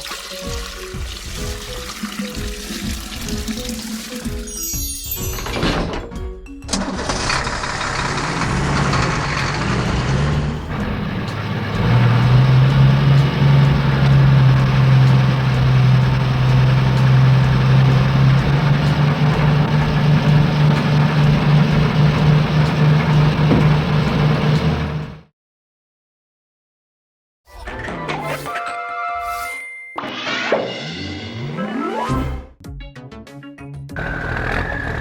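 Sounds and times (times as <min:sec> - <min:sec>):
low engine hum: 0:06.8 - 0:25.3.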